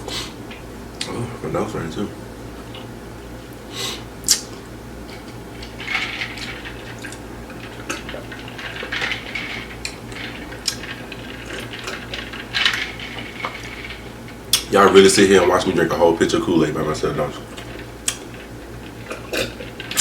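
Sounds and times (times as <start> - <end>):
person gulping and slurping: 18.9 - 20.0.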